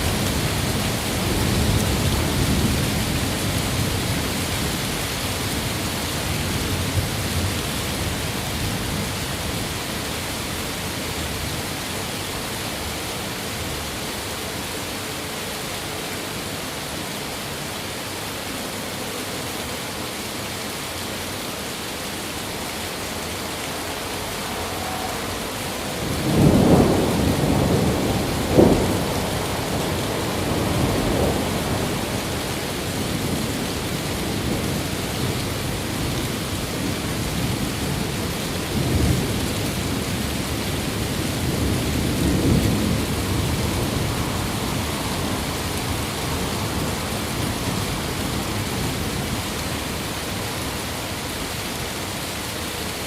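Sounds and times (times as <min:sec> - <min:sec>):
heavy rain: 0:00.0 - 0:53.0
thunder rumbling: 0:23.4 - 0:35.3, 0:38.7 - 0:49.5.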